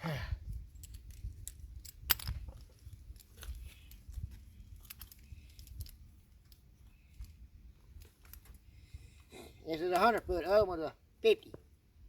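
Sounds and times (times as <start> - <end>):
ropes and gear clicking: 0.8 - 8.6.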